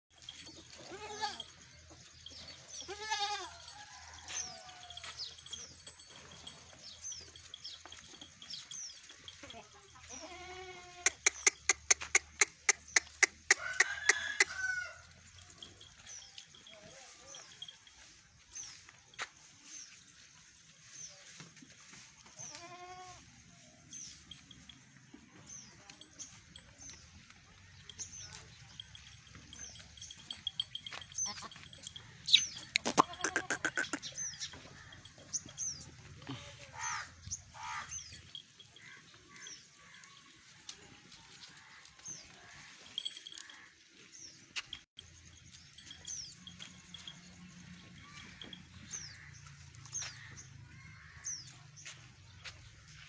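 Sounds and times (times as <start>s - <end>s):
goat bleating: 0.8s - 1.5s, 2.8s - 3.6s, 9.5s - 14.4s, 22.4s - 23.2s, 32.6s - 34.2s, 36.2s - 37.9s.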